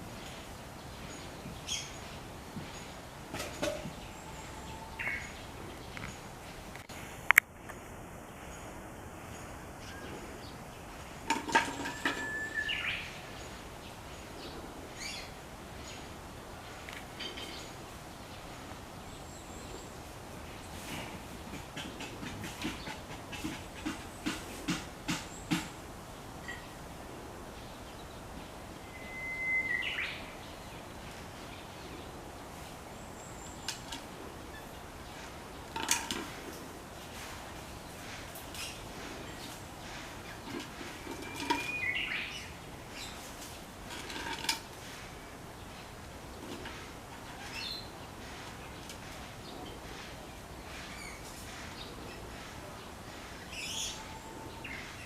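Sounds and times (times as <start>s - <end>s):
outdoor background noise: 0.0s - 55.0s
bird-like chirp: 9.3s - 16.1s, 27.7s - 32.2s, 37.8s - 43.3s, 45.6s - 55.0s
bird whistled call: 12.0s - 13.1s, 28.8s - 30.3s
knocks on hollow bamboo tube: 21.6s - 25.8s.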